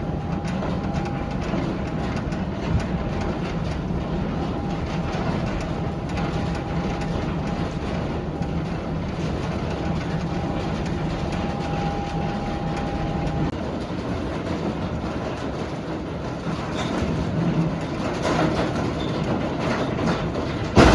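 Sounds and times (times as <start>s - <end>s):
heavy truck engine rumbling: 0.0s - 16.3s.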